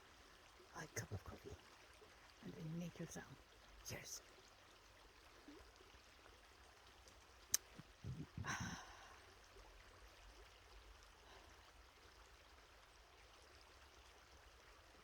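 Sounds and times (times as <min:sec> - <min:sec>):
breathy sigh: 0:08.2 - 0:09.2.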